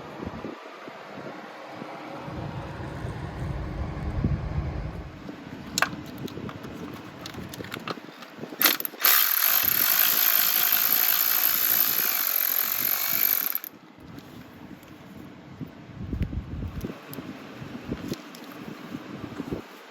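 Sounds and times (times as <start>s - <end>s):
electric ratchet running: 8.6s - 13.7s.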